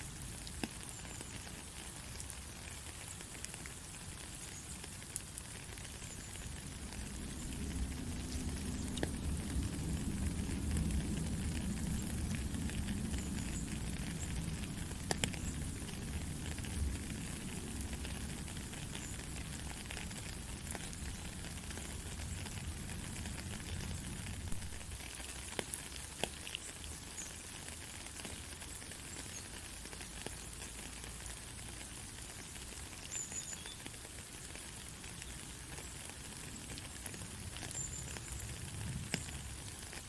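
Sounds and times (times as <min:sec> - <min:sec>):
heavy rain falling: 0:00.0 - 0:40.0
low rumble of distant thunder: 0:06.6 - 0:25.0.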